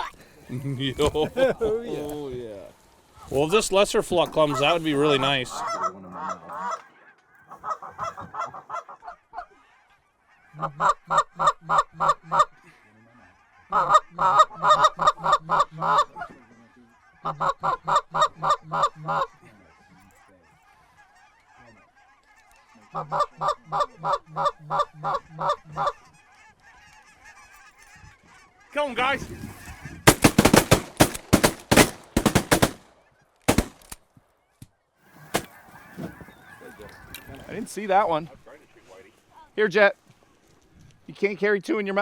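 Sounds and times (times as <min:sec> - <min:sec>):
faint flock of geese calling: 0:00.0 - 0:41.2
goose call honks and clucks: 0:04.3 - 0:32.7.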